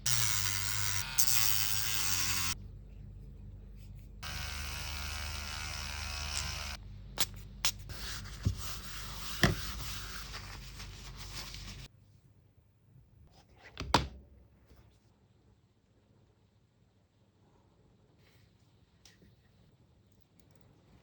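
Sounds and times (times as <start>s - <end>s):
small electric motor buzzing: 0.0s - 2.6s, 4.2s - 6.8s.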